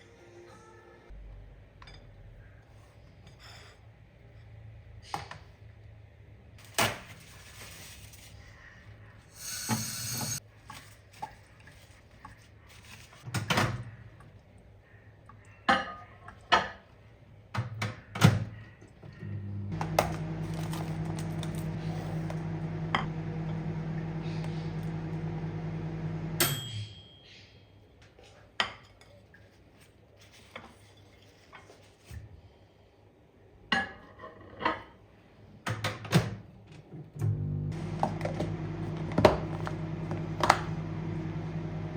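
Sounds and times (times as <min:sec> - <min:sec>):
microwave oven humming: 0:19.2 - 0:26.8, 0:37.2 - 0:41.9.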